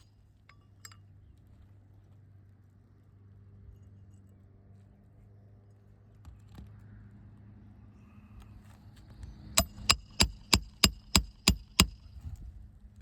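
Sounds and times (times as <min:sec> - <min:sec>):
hammer striking metal: 0:09.6 - 0:12.0.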